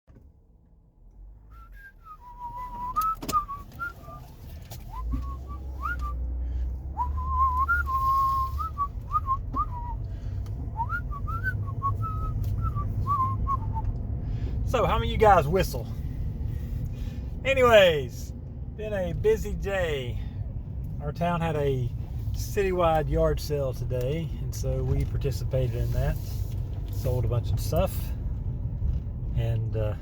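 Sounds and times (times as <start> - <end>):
low rumble: 0.2 - 14.8
man whistling a tune: 1.4 - 14.0.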